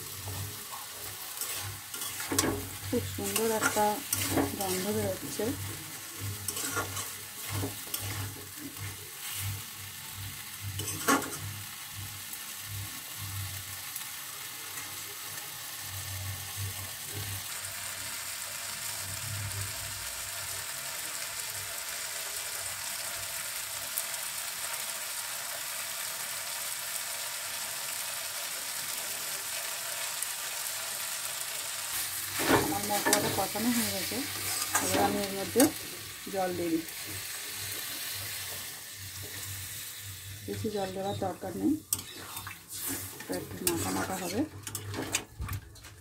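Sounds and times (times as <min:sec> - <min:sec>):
vegetables sizzling in a pan: 0:00.0 - 0:46.0
spatula scraping a pan: 0:00.1 - 0:09.6, 0:10.8 - 0:11.5, 0:31.9 - 0:35.3, 0:40.9 - 0:45.3.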